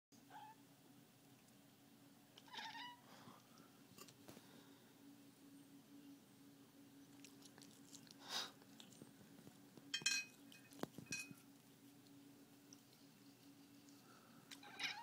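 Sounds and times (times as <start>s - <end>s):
cat chirp: 14.6s - 15.0s.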